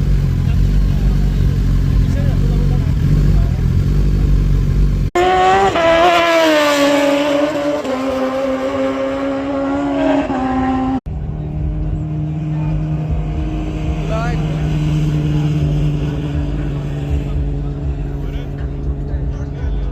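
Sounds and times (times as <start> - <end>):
low engine rumble: 0.0 - 5.2, 10.7 - 19.9
motorcycle engine at high revs: 0.0 - 19.9.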